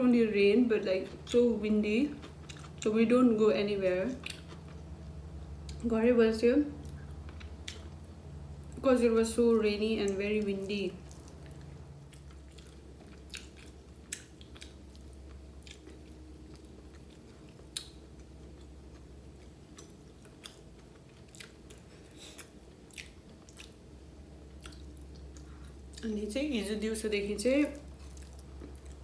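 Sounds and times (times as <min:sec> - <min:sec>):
faint low hum: 0:00.0 - 0:29.0
person chewing food: 0:02.0 - 0:02.8, 0:04.2 - 0:05.8, 0:06.8 - 0:08.8, 0:11.0 - 0:26.1, 0:27.8 - 0:29.0.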